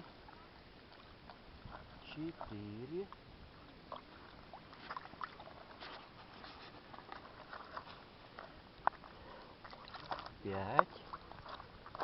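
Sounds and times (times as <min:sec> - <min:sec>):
small water splashes: 0:00.0 - 0:12.0
ticks and drips: 0:07.0 - 0:12.0.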